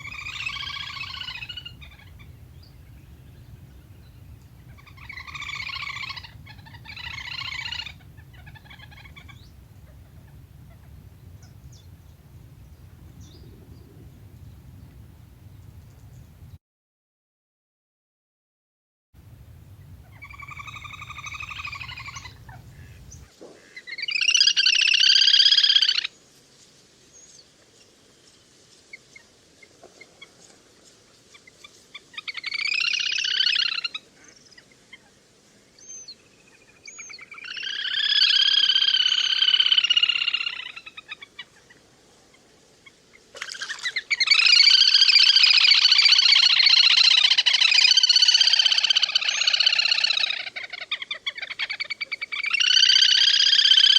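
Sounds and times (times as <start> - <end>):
ducks whistling calls: 0.0 - 16.6, 19.4 - 26.1, 32.2 - 34.3, 36.9 - 41.5, 43.4 - 53.9.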